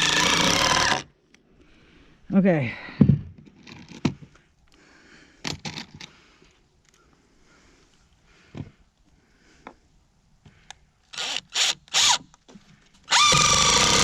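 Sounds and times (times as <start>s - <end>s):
cordless drill driving screws: 0.0s - 1.0s, 11.1s - 12.2s, 13.1s - 14.0s.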